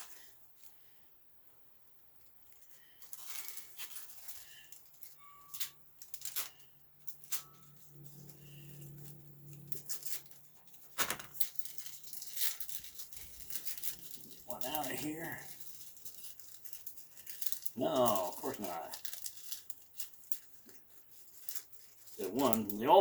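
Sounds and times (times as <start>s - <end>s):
plastic package rustling: 2.2s - 23.0s.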